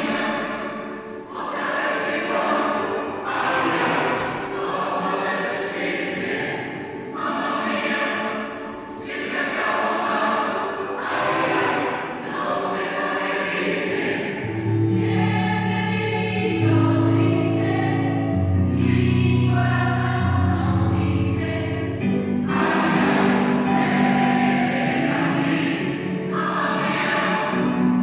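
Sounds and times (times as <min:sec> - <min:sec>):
choir singing in parts: 0:00.0 - 0:28.0.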